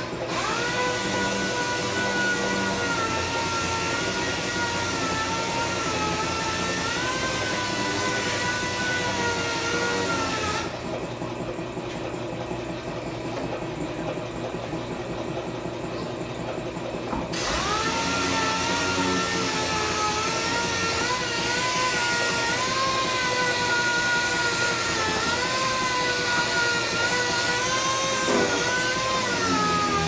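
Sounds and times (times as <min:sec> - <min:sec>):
electric power tool whining: 0:00.0 - 0:10.9, 0:17.3 - 0:30.0.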